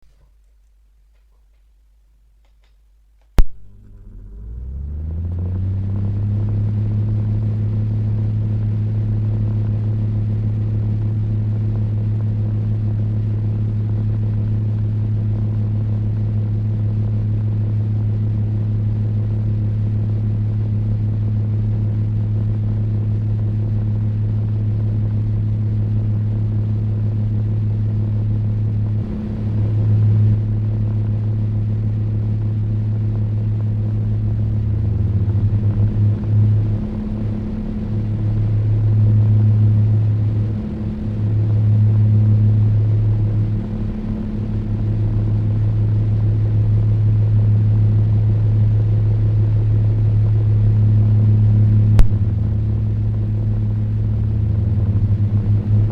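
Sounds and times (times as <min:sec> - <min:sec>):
fan switch click: 0:02.4 - 0:04.0, 0:52.0 - 0:52.3
fan motor hum and air rush: 0:03.4 - 0:55.9.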